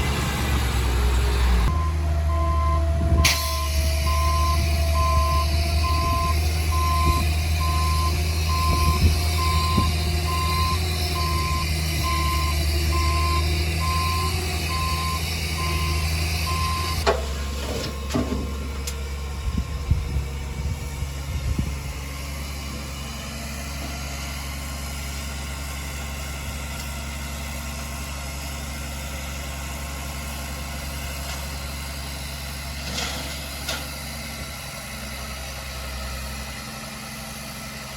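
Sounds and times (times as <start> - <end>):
diesel engine running: 0.0 - 37.9
clunks: 1.5 - 20.2, 32.7 - 34.1
reversing alarm beeping: 1.6 - 17.1, 22.0 - 23.2.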